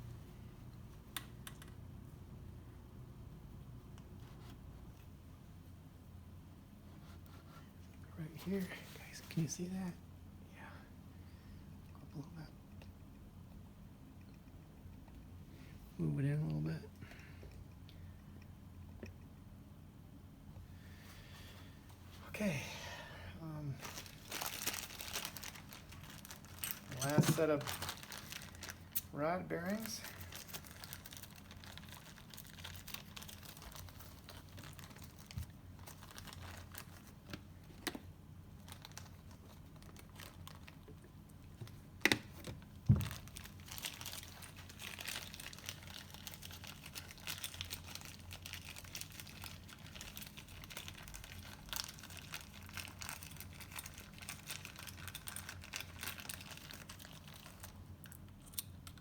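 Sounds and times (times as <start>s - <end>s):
light crinkling: 23.7s - 59.0s.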